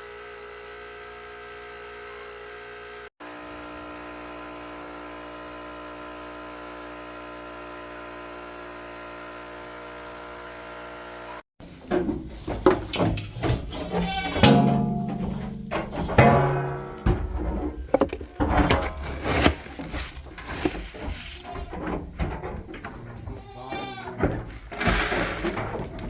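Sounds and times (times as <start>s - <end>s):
plucked guitar music: 14.4s - 17.4s.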